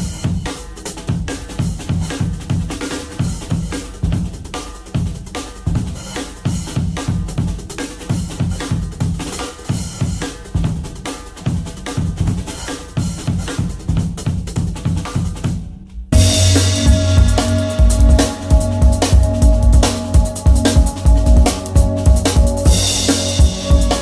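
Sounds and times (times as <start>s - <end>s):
fast drum kit playing: 0.0s - 24.0s.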